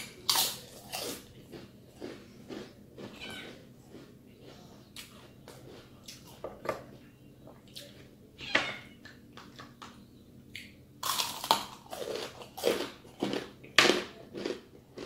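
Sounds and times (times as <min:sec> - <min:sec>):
crispy chicken skin crunching: 0:11.0 - 0:15.0.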